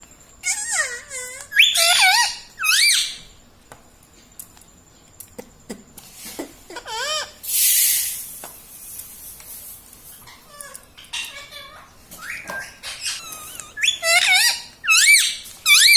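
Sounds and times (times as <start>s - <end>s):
parrot squeaky calls: 0.4s - 3.3s, 6.8s - 8.2s, 10.1s - 15.9s.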